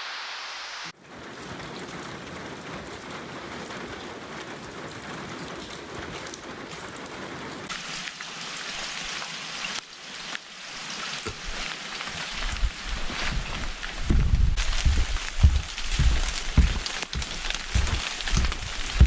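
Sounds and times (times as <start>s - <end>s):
rain pattering: 0.0s - 19.0s
low knocks: 14.0s - 19.0s.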